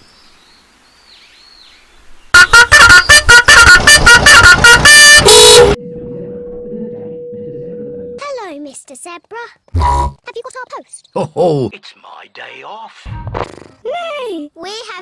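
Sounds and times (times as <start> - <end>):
faint birdsong: 0.0 - 3.2
loud car horn honking: 2.4 - 5.8.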